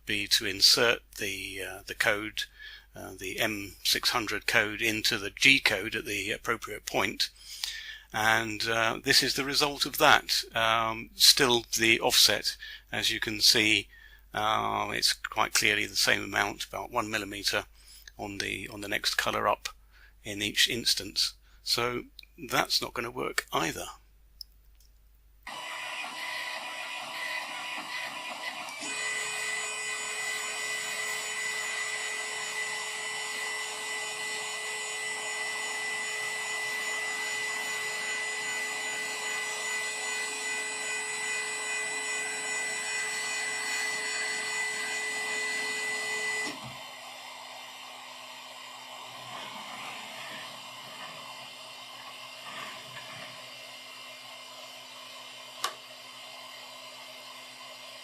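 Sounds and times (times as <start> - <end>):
printer fans whirring: 25.5 - 58.0.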